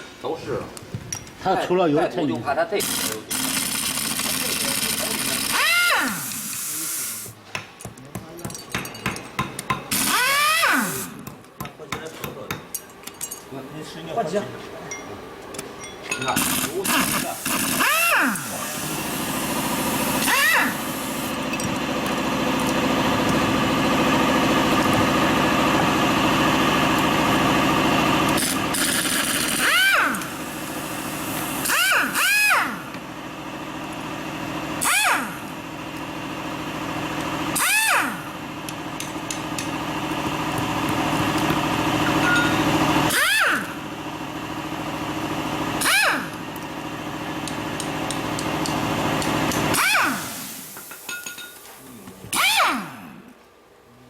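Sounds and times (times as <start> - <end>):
machinery humming: 16.4 - 31.8
short squeals: 20.2 - 21.2, 52.3 - 53.0.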